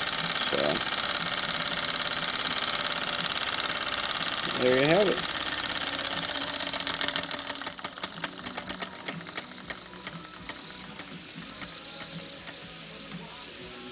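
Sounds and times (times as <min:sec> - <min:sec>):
model steam engine chuffing: 0:00.0 - 0:13.9
steady high hiss: 0:08.0 - 0:13.9.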